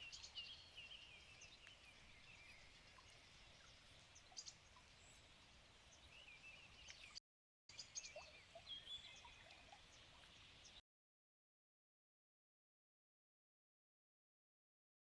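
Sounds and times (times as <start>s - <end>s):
quiet outdoor hiss: 0.0s - 10.8s
small birds chirping and warbling: 0.0s - 10.8s.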